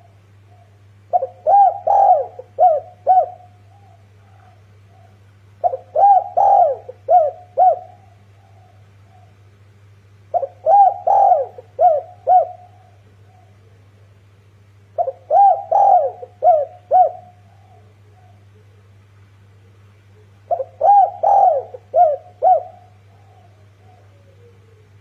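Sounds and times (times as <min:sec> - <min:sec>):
dove cooing: 0:00.0 - 0:09.6, 0:10.2 - 0:14.2, 0:14.9 - 0:25.0
faint low hum: 0:00.0 - 0:25.0.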